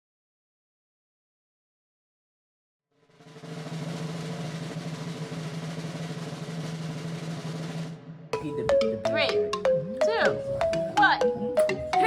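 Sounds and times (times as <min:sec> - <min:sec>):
drum roll: 0:03.0 - 0:12.0.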